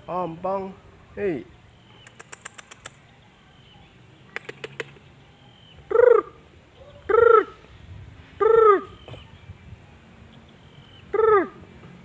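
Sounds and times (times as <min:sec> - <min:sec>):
bird calling: 0:01.6 - 0:07.8, 0:08.4 - 0:09.6, 0:10.3 - 0:11.7
sharp clicks: 0:02.0 - 0:03.0, 0:04.3 - 0:05.0.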